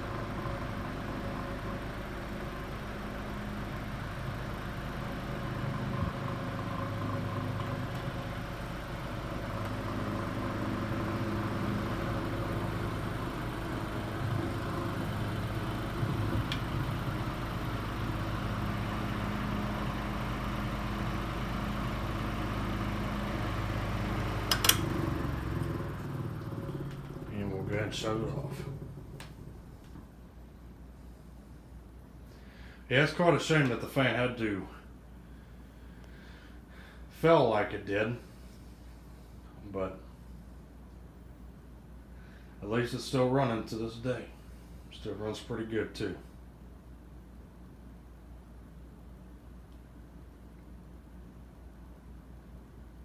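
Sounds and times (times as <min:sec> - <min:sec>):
desk fan humming and shaking: 0:00.0 - 0:53.0
sharp click: 0:24.5 - 0:24.9.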